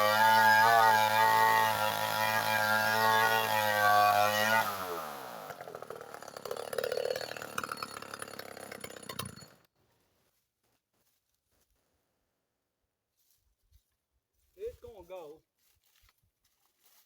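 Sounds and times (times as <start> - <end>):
chainsaw revving and idling: 0.0 - 9.7.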